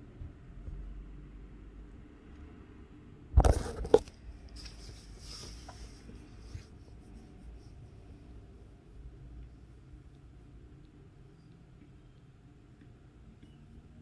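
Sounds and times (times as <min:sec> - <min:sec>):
scraping and rubbing: 0:03.4 - 0:08.3.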